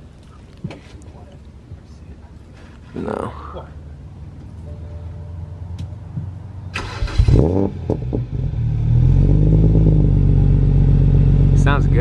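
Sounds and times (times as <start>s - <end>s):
car engine starting and idling: 4.0s - 12.0s.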